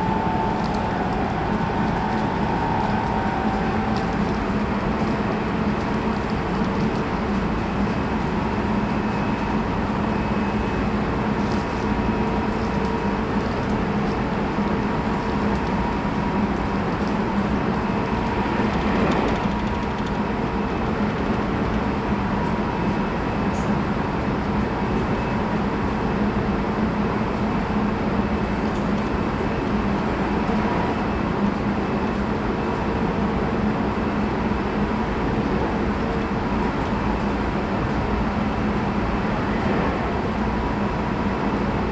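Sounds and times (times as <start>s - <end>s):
train motor hum: 0.0s - 9.6s
train wheels on rails: 0.0s - 41.9s.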